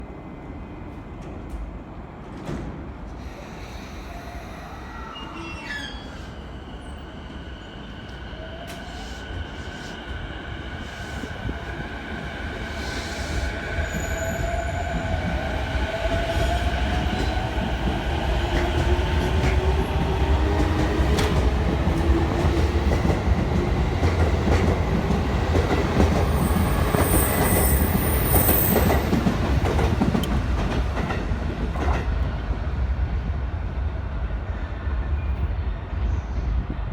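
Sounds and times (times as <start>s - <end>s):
train wheels on rails: 5.8s - 33.4s.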